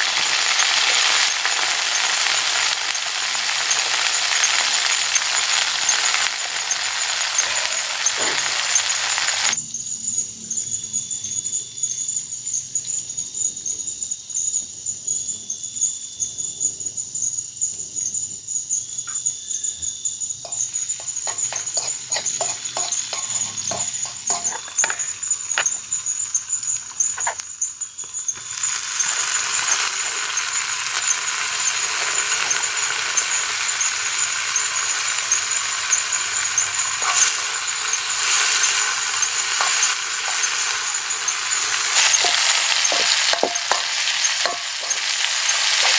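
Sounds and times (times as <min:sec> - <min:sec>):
food sizzling in hot oil: 0:00.0 - 0:09.6, 0:20.4 - 0:45.9
insect drone: 0:00.0 - 0:45.9
sharp crackles: 0:20.8 - 0:45.9.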